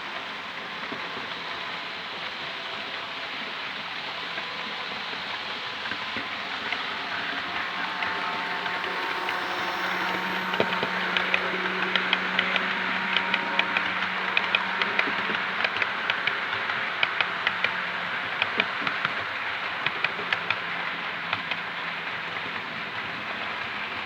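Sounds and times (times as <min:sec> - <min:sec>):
model train motor hum: 0:00.0 - 0:24.0.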